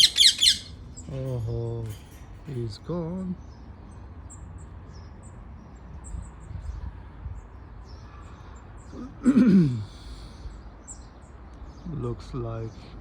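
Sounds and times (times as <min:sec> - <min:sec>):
low outdoor rumble: 0:00.0 - 0:05.0
small birds chirping: 0:00.0 - 0:13.0.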